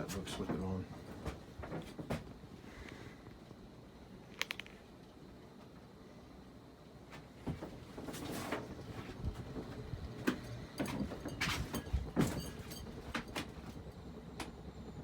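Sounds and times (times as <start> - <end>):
ceiling fan buzzing: 0.0 - 15.0
knocks and rustles: 0.1 - 2.4, 7.1 - 13.8.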